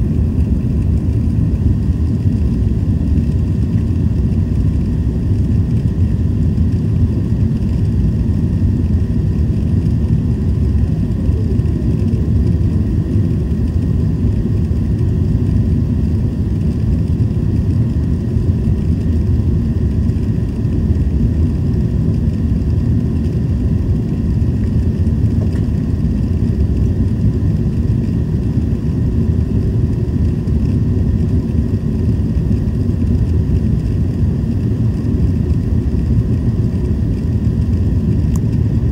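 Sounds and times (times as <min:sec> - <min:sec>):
rushing air in cabin: 0:00.0 - 0:18.1
jet engines rumbling: 0:00.0 - 0:38.9.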